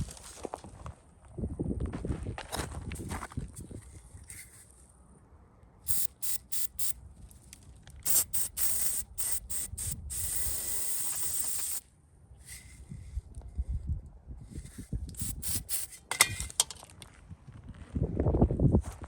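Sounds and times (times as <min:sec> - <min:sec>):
spray hissing: 0:05.9 - 0:07.0, 0:08.0 - 0:11.8, 0:15.2 - 0:16.0.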